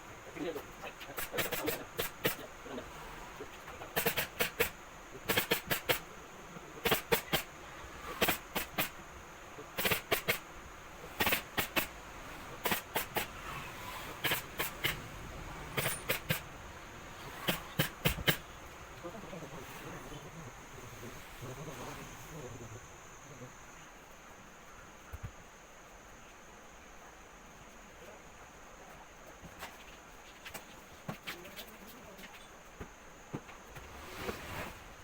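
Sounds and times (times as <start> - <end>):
staple gun firing: 5.3 - 6.0.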